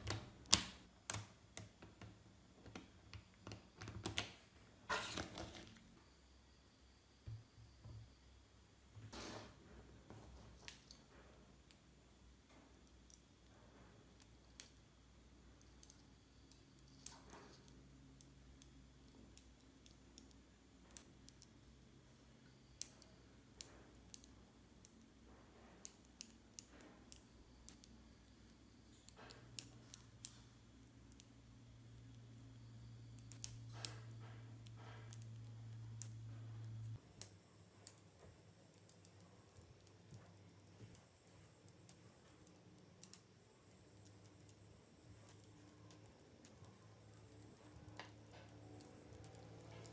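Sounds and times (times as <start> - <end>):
faint low hum: 0.0 - 49.9
magnetic balls clicking together: 12.7 - 21.8, 25.8 - 49.9.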